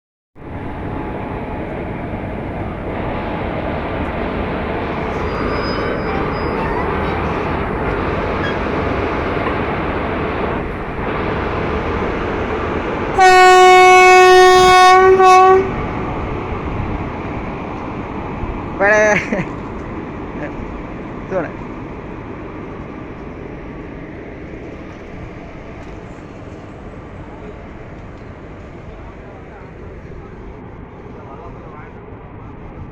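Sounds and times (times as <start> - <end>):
train rumbling: 0.4 - 32.9
electric locomotive horn: 5.0 - 8.8, 13.1 - 16.2.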